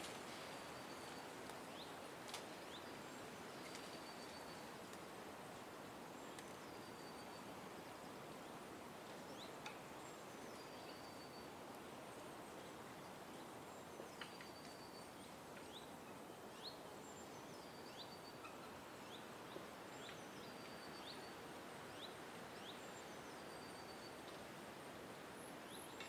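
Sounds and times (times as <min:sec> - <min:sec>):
background hiss: 0:00.0 - 0:26.0
bird calls: 0:14.1 - 0:24.2.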